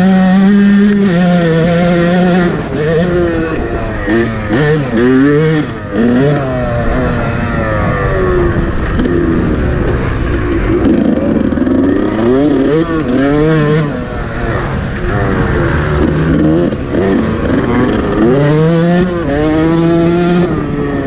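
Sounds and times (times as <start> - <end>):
motocross engine revving: 0.0 - 21.0.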